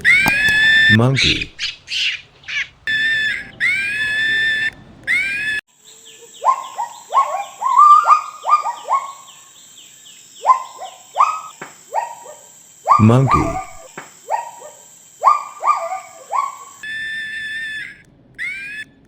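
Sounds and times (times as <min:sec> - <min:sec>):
monkey short falling calls: 0:00.0 - 0:05.6, 0:06.4 - 0:09.4
monkeys squealing: 0:00.0 - 0:05.6, 0:06.2 - 0:09.5, 0:10.4 - 0:18.9.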